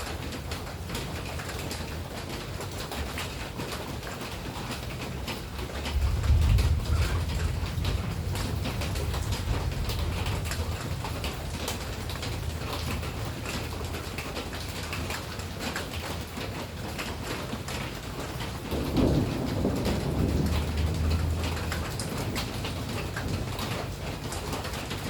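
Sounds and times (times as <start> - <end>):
raindrops on hard surface: 0.0 - 25.0
low steady rumble: 5.8 - 14.9, 18.9 - 24.4.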